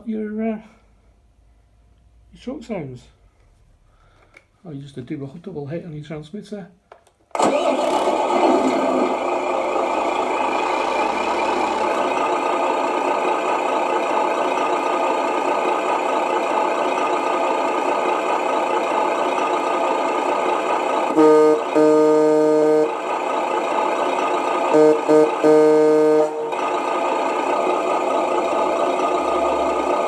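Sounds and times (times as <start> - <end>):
simulated diesel engine idling: 8.8 - 30.0.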